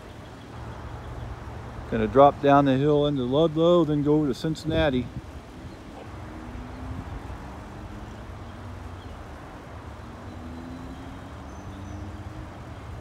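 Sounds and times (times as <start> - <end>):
car engines: 0.0 - 13.0.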